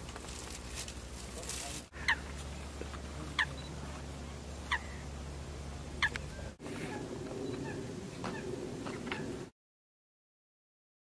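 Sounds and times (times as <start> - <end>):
steady low rumble: 0.0 - 9.5
bird short sharp calls: 4.6 - 5.2.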